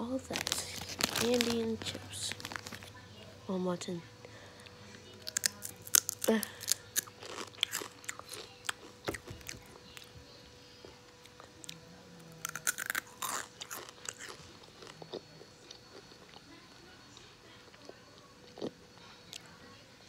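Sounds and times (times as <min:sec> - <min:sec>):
crisp crunching clicks: 0:00.3 - 0:02.9
person chewing candy: 0:00.3 - 0:02.9, 0:04.6 - 0:10.1, 0:12.4 - 0:16.5, 0:17.7 - 0:19.5.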